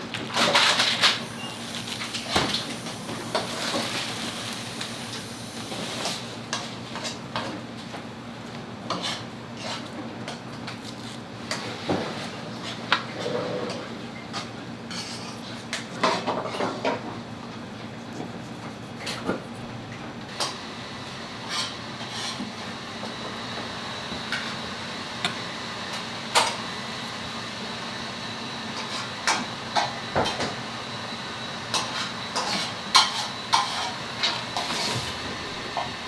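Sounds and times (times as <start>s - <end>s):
steady hum: 0.0s - 6.6s, 20.4s - 30.8s, 31.6s - 36.0s.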